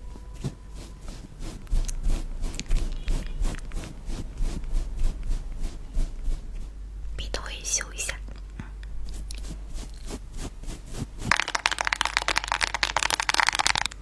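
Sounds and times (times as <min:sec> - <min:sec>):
close scraping or tapping strokes: 0:00.0 - 0:06.9, 0:08.9 - 0:12.9.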